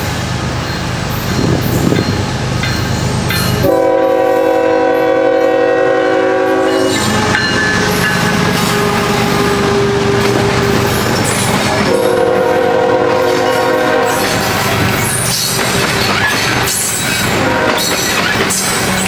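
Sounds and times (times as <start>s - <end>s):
freight train rumbling past: 0.0s - 19.0s
locomotive air horn blast: 3.6s - 10.9s, 11.8s - 14.7s, 17.2s - 18.0s.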